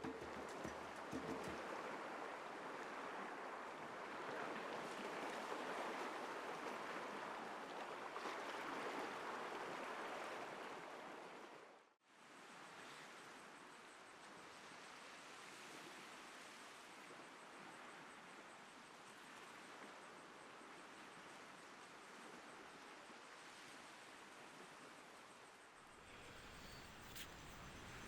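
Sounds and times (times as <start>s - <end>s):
sea surf washing: 25.9s - 28.0s.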